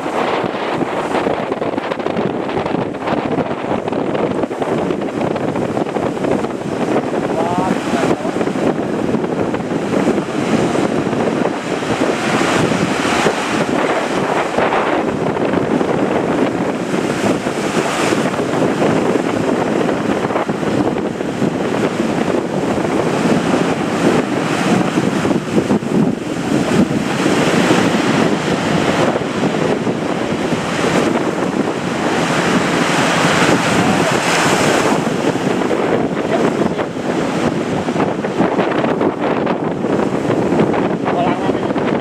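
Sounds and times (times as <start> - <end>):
heavy surf crashing: 0.0 - 42.0
wind buffeting microphone: 0.0 - 42.0.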